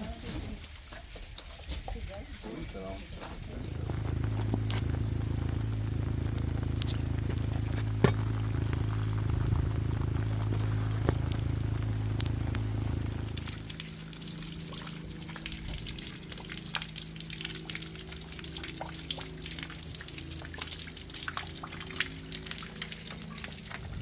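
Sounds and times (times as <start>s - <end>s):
rainwater dripping and trickling: 0.0s - 24.0s
low steady hum: 2.6s - 24.0s.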